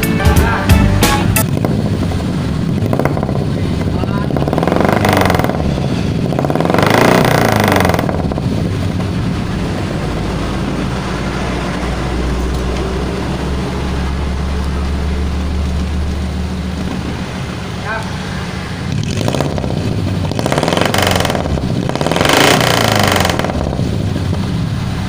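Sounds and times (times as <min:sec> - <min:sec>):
engine revving and idling: 0:00.0 - 0:25.0.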